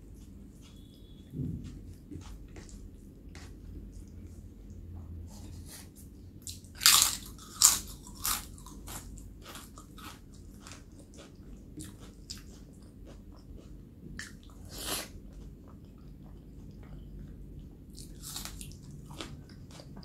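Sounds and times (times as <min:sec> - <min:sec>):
crunching on crisp food: 0:06.4 - 0:16.0, 0:18.0 - 0:20.0.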